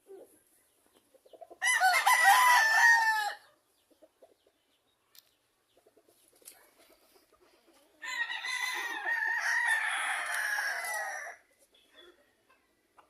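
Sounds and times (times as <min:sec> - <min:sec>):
rooster crowing: 0:01.6 - 0:03.4, 0:08.0 - 0:11.4.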